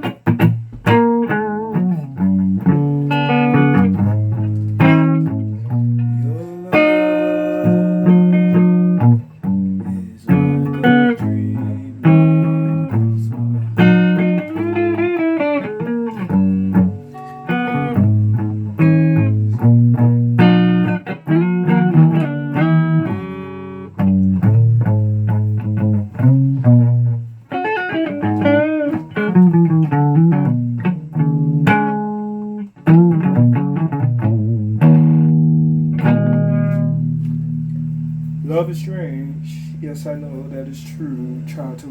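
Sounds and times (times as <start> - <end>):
plucked guitar notes: 0.0 - 41.9
low bass line: 2.0 - 15.0.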